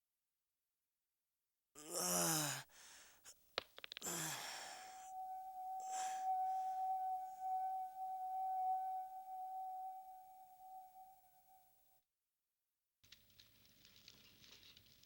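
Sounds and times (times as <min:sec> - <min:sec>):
falling vocal exhale: 0:01.8 - 0:03.3, 0:04.0 - 0:05.1
clear ringing tone: 0:04.1 - 0:11.6.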